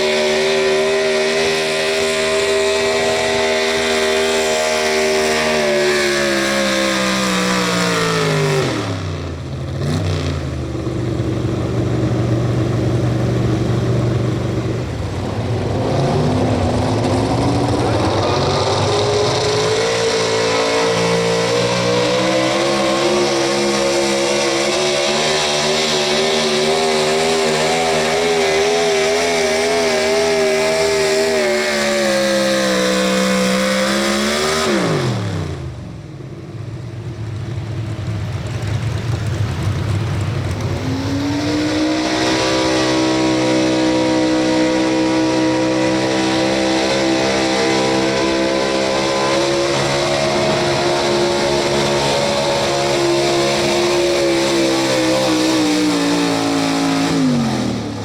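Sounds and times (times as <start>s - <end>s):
truck engine at high revs: 0.0s - 58.0s
engine holding high note: 38.7s - 58.0s.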